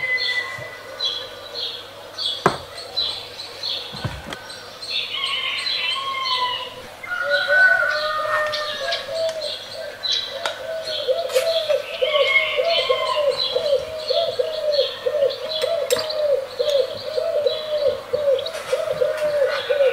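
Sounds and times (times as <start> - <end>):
lower bird warbling: 0.0 - 19.9
soft knocks: 2.4 - 3.2, 3.9 - 4.4.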